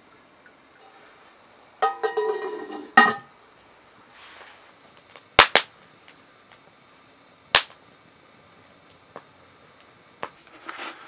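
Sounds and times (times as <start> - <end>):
sharp snaps or knocks: 5.0 - 6.6, 7.5 - 7.9.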